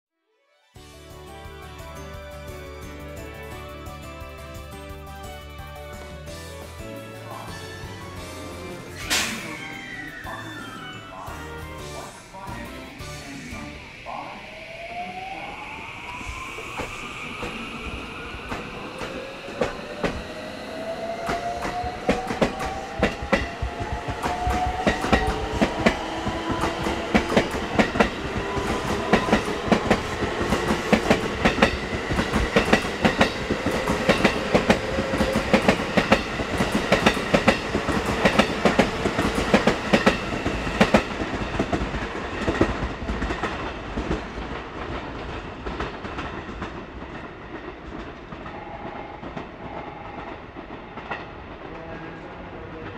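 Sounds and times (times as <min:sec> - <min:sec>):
electric train motor whine: 0:12.1 - 0:42.2
train wheels clickety-clack: 0:18.4 - 0:52.9.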